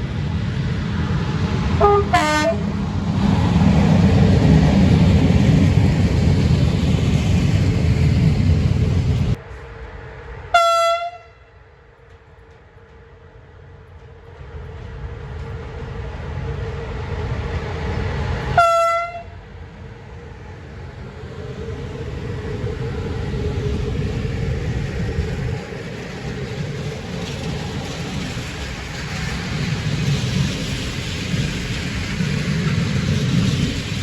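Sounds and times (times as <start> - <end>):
approaching train rumble: 0.0 - 34.0
locomotive horn blasts: 1.8 - 2.6, 10.5 - 11.5, 18.6 - 19.4.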